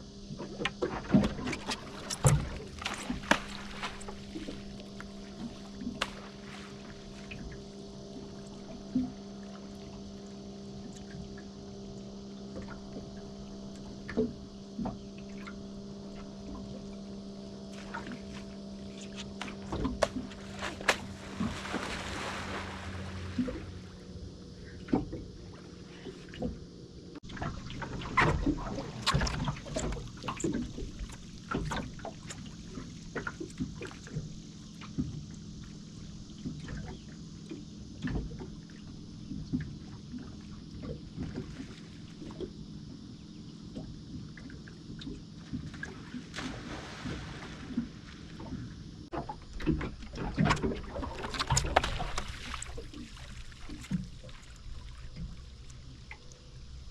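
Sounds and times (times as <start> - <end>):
boat engine humming: 0.0 - 56.9
water splashing: 0.9 - 9.1, 17.7 - 24.2, 45.5 - 48.6, 49.2 - 56.7.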